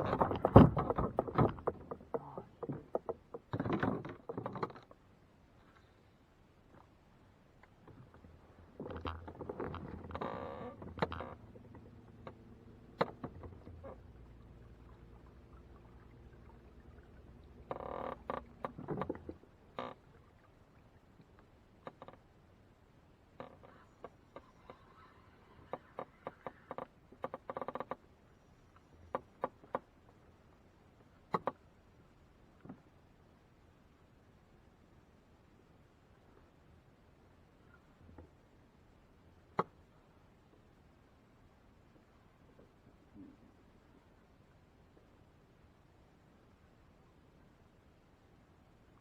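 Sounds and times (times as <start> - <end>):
sharp clicks and knocks: 0.0 - 5.0, 8.8 - 14.0
gear knocking and rustling in kayak: 0.0 - 5.9, 7.6 - 20.3, 21.2 - 22.4, 25.5 - 28.1, 28.8 - 30.2.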